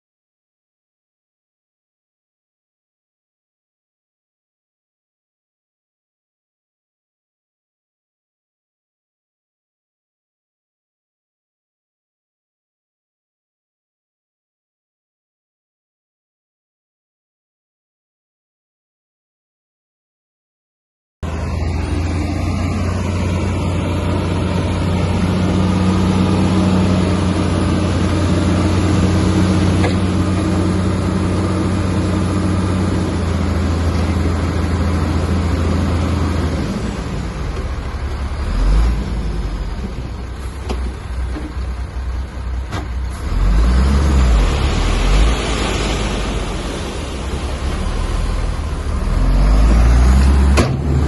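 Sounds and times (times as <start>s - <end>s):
heavy diesel engine droning: 21.2s - 51.0s.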